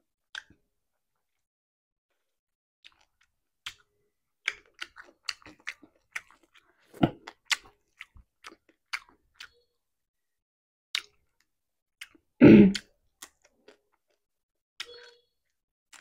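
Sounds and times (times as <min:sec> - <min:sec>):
wet chewing with mouth clicks: 0:02.1 - 0:09.6, 0:10.9 - 0:15.2.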